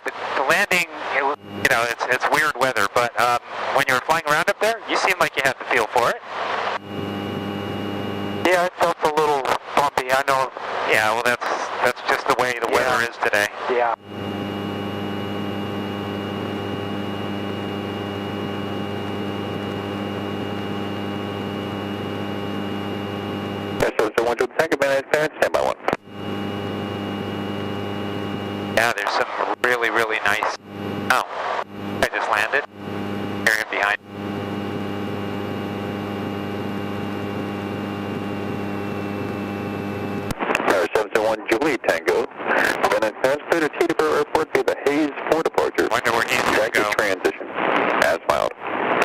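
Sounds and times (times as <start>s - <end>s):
propeller airplane engine droning: 0.0s - 49.0s.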